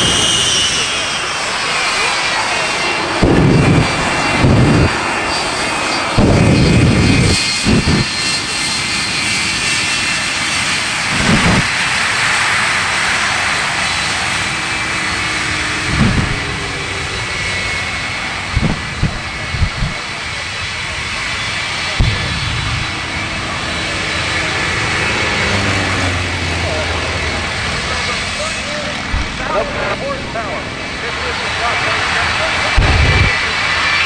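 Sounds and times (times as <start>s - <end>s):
jet engines roaring: 0.0s - 34.0s
propeller planes: 0.0s - 34.0s
low thumps: 3.2s - 5.0s, 6.2s - 8.1s, 11.1s - 11.7s, 15.9s - 16.8s, 18.4s - 20.0s, 22.0s - 22.9s, 29.1s - 29.6s, 32.7s - 33.4s.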